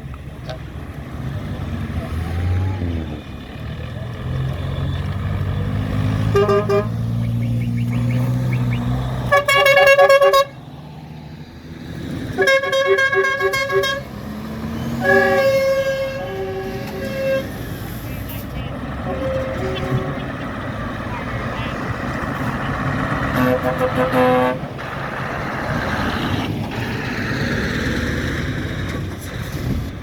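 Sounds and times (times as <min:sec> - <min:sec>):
engines running: 0:00.0 - 0:30.0
vehicle horns tooting: 0:04.4 - 0:10.6, 0:12.3 - 0:24.8.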